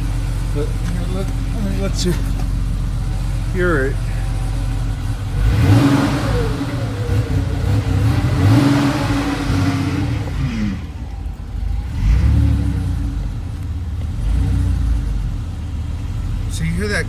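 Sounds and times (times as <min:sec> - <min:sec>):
car engine revving: 0:00.0 - 0:17.0
man talking: 0:00.5 - 0:02.4, 0:03.5 - 0:04.3, 0:16.5 - 0:17.0.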